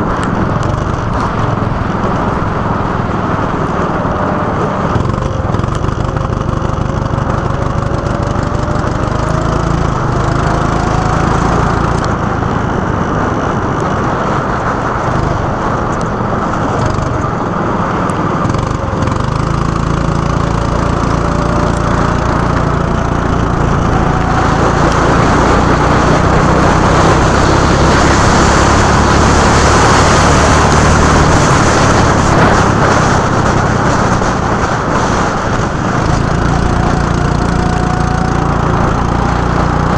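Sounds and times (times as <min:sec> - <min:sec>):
go-kart engine accelerating: 0:00.0 - 0:39.9
loud rushing noise: 0:08.4 - 0:39.9.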